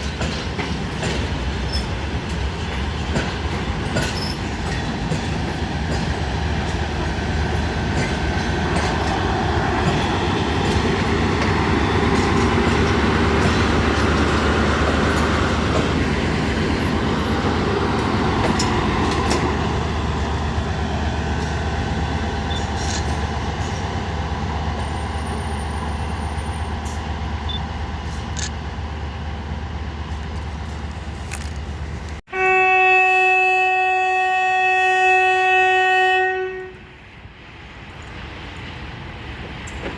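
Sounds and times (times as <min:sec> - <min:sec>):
train wagons rumbling: 0:00.0 - 0:32.3, 0:33.2 - 0:39.9
diesel locomotive engine hum: 0:00.0 - 0:39.9
locomotive horn: 0:32.3 - 0:37.0.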